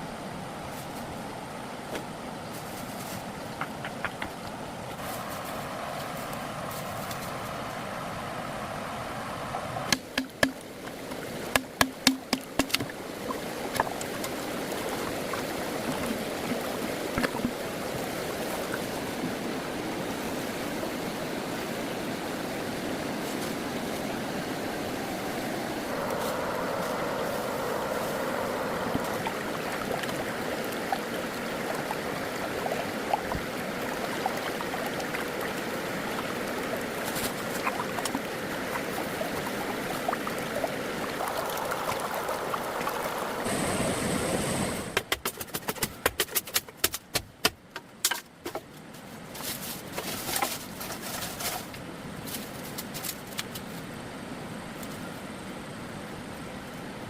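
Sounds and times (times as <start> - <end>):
water running: 9.8 - 20.5, 23.2 - 45.0.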